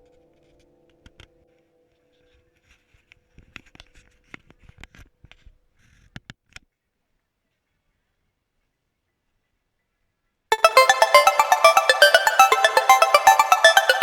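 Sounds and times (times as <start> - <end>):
held musical tone: 10.5 - 14.0.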